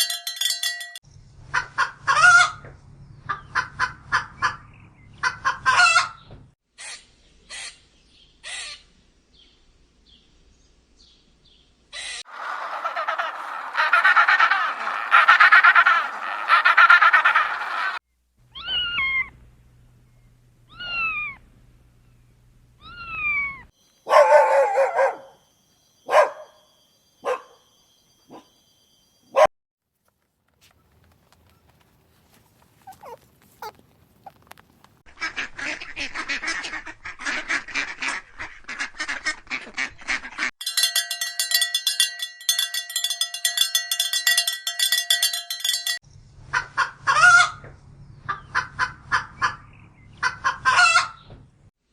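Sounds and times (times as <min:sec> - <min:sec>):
falling animal calls: 0:12.0 - 0:19.4, 0:20.7 - 0:21.4, 0:32.3 - 0:34.5
rapid animal chatter: 0:12.3 - 0:18.0.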